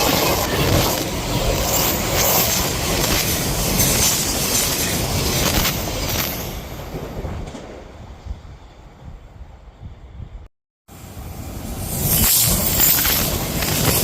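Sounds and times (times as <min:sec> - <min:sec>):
train wheels clacking over rails: 0:00.0 - 0:07.8
electric train passing: 0:00.0 - 0:14.0.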